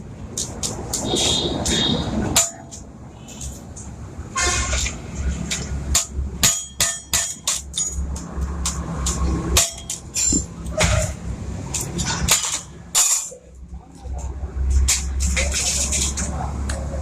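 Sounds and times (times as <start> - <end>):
hammer striking metal: 2.3 - 2.8, 5.9 - 11.2, 11.8 - 13.4.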